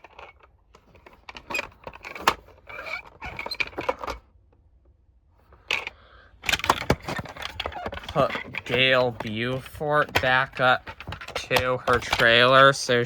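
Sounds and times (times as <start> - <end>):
toy parts clicking and rattling: 5.7 - 12.8.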